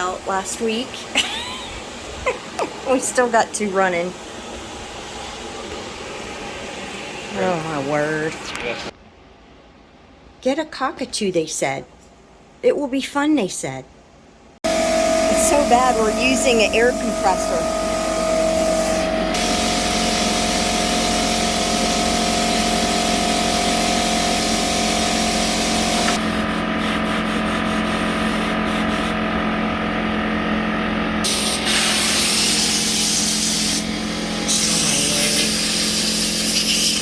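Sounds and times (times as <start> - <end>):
steady machine hum: 14.6 - 36.6
compressed air hissing: 14.7 - 29.2, 31.2 - 37.0.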